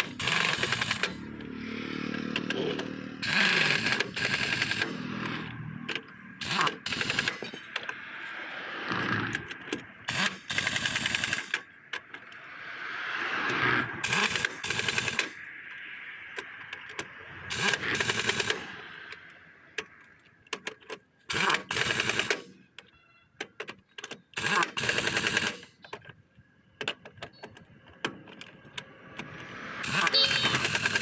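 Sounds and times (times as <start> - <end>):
impact wrench rattling: 0.0 - 1.4, 2.1 - 7.9, 9.4 - 12.2, 14.0 - 15.4, 16.3 - 18.8, 19.9 - 22.6, 24.0 - 25.8, 26.8 - 31.0
impact wrench clicks: 14.1 - 26.0.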